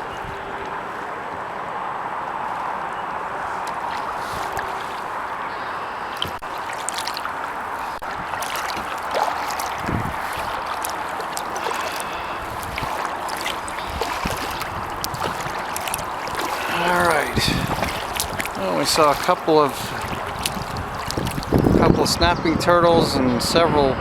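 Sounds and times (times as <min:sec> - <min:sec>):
small splashes: 0:02.4 - 0:21.9
water dripping off paddle: 0:02.9 - 0:21.9.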